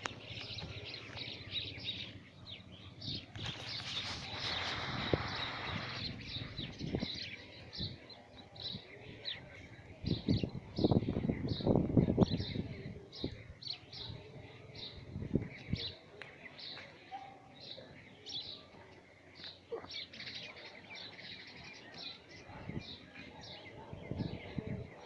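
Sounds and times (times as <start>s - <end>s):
wind or handling bumps on microphone: 3.1s - 7.9s.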